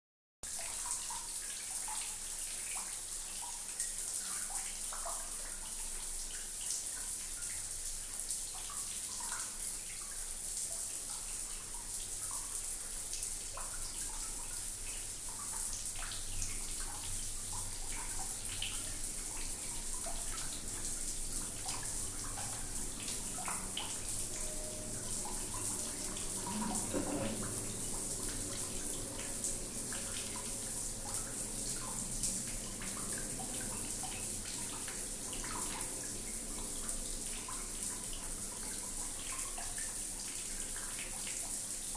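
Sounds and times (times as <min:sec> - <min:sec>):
tap water running: 0:00.4 - 0:41.9.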